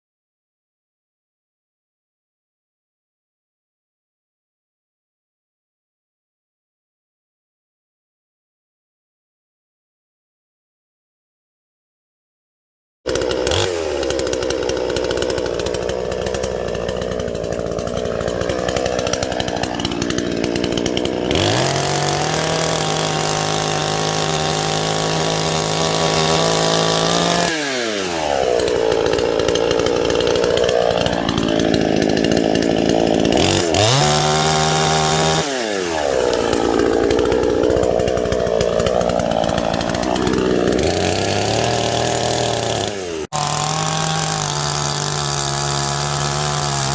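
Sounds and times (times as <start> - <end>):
chainsaw cutting wood: 13.1 - 46.9.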